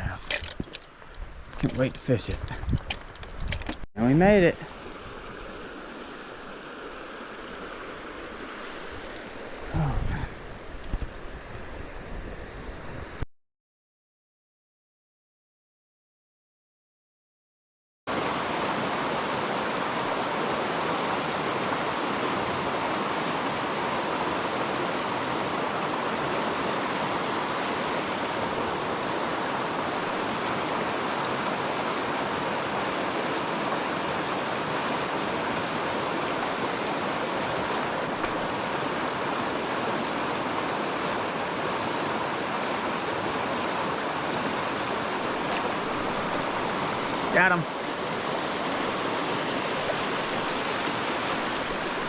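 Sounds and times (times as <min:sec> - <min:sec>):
river water rushing: 0:04.4 - 0:12.0, 0:18.1 - 0:52.0.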